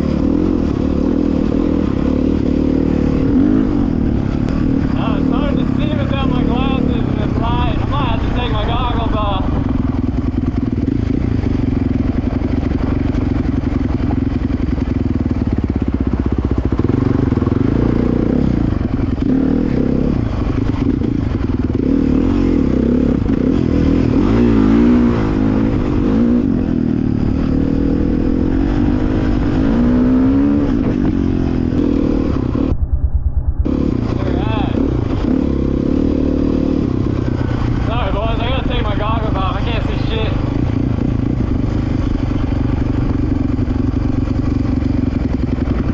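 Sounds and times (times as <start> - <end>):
dirt bike engine revving: 0.0 - 32.8, 33.6 - 45.9.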